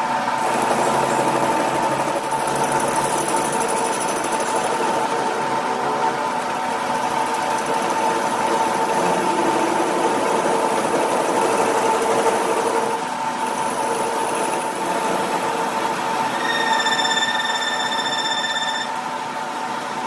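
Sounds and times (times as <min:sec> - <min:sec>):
motor-driven machine whining: 0:13.5 - 0:19.1.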